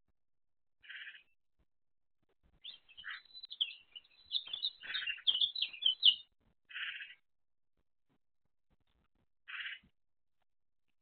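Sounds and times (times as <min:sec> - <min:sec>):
small bird chirping: 0:00.8 - 0:01.4, 0:02.6 - 0:07.2, 0:09.4 - 0:09.9
harsh bird call: 0:02.7 - 0:07.2.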